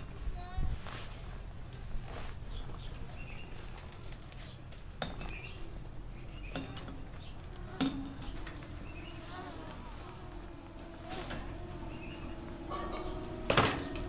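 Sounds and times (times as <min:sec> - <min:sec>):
small bird chirping: 0:05.2 - 0:13.4
low steady rumble: 0:07.0 - 0:14.0.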